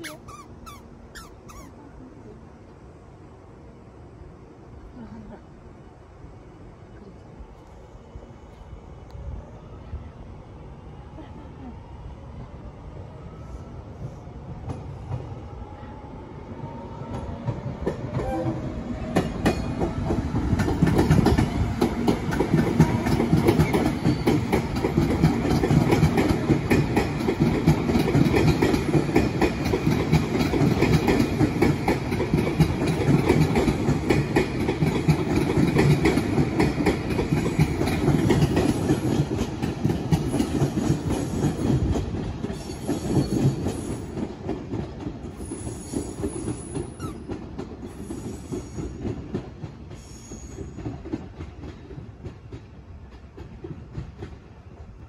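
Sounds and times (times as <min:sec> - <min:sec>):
electric train high whine: 0:01.7 - 0:35.4
train wheels clicking over rail joints: 0:17.0 - 0:55.0.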